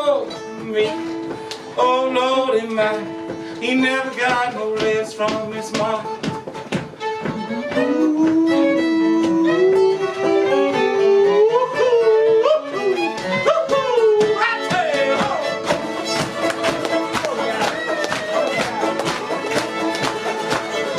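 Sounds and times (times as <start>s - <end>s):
strummed acoustic guitar: 0.0s - 11.6s, 12.7s - 20.9s
fiddle playing sliding notes: 0.0s - 20.9s.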